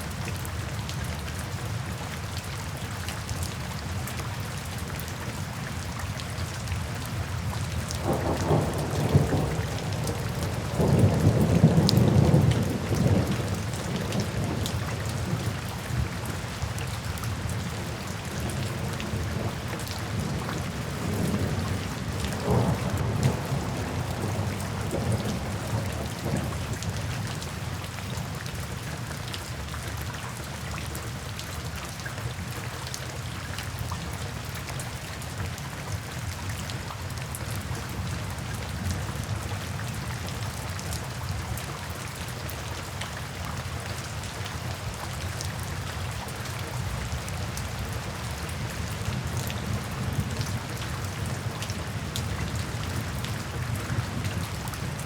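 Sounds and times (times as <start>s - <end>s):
rain falling into puddles: 0.0s - 55.0s
distant thunder rumble: 21.0s - 26.7s.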